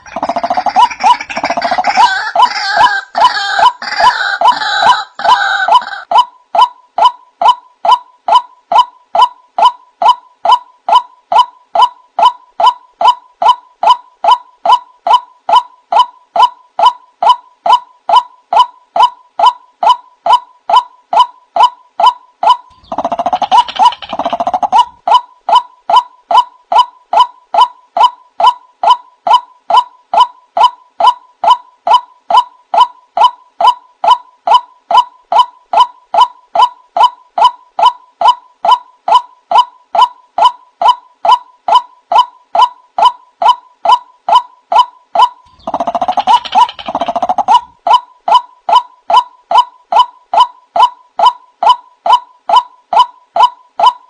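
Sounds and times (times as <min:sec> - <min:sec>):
waterhen nasal calls: 0:00.0 - 0:06.1.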